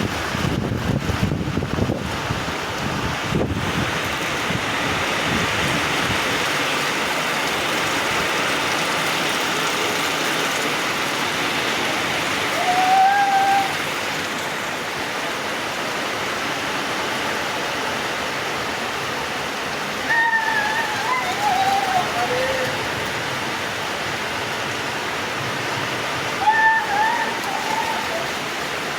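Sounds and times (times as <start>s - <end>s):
heavy rain falling: 0.0s - 28.9s.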